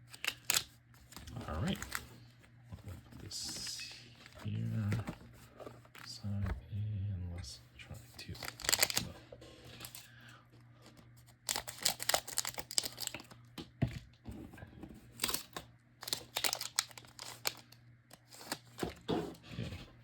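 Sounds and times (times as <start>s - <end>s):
wrapper tearing and crinkling: 0.1s - 2.0s, 8.4s - 9.0s, 11.4s - 13.3s, 15.2s - 18.6s.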